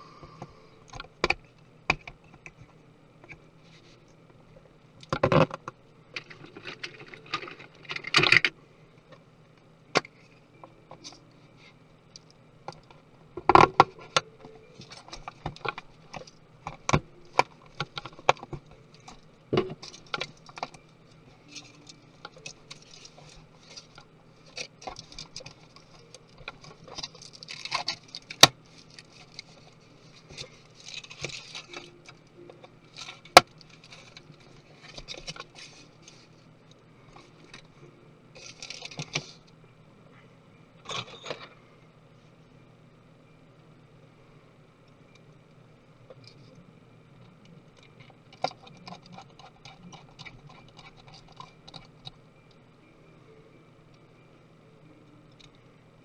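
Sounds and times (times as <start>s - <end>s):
small parts clicking and tapping: 5.0s - 11.3s, 12.1s - 37.8s, 38.4s - 39.6s, 44.8s - 52.8s, 55.0s - 55.7s.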